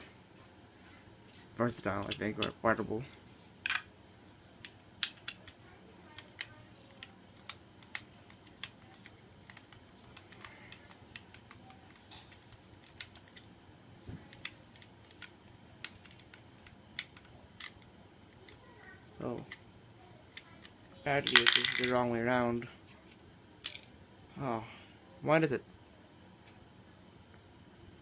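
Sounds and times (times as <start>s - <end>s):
small plastic and metal parts clicking: 4.6s - 13.5s.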